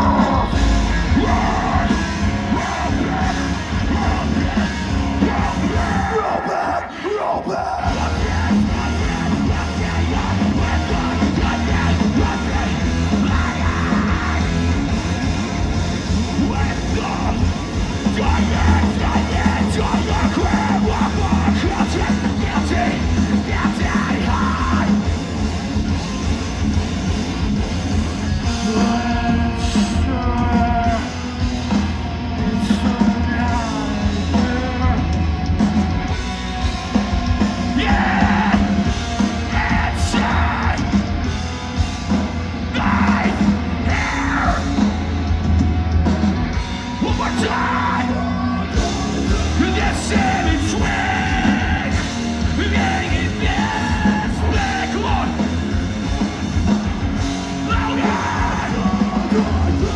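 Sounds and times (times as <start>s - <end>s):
screamed vocals: 0.0s - 15.4s, 37.6s - 41.0s, 42.7s - 45.0s, 46.6s - 55.6s, 57.5s - 59.9s
metal band playing live: 0.0s - 59.9s.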